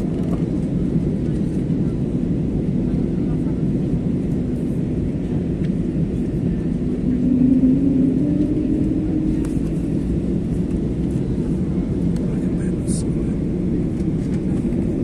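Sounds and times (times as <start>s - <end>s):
airplane cabin rumble: 0.0s - 15.0s
humming engine tone: 5.8s - 12.6s.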